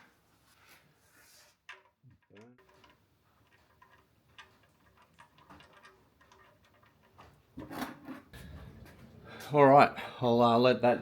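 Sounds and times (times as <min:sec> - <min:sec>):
hand tools ticking and rubbing: 0:01.2 - 0:07.6.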